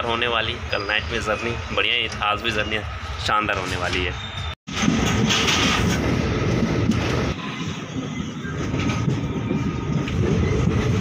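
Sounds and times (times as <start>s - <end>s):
wheel and rail noise: 0.0s - 11.0s.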